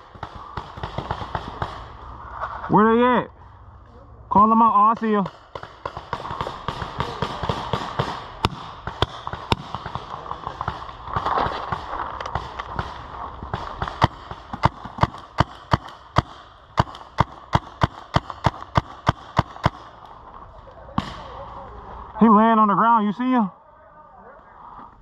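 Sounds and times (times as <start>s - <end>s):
paintball guns firing: 0.0s - 2.3s, 4.4s - 20.2s, 20.9s - 21.6s.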